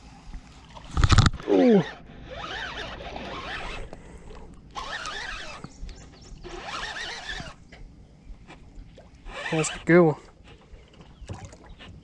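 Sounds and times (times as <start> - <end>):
fishing reel cranking: 1.0 - 4.0, 4.7 - 5.7, 6.4 - 7.6, 9.2 - 9.9.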